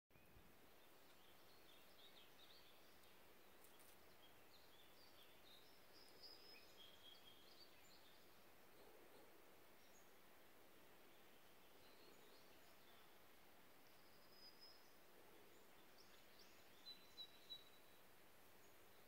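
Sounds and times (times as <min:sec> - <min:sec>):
soft steady hiss: 0:00.1 - 0:19.0
birdsong chirps and whistles: 0:00.2 - 0:10.2, 0:13.8 - 0:19.0.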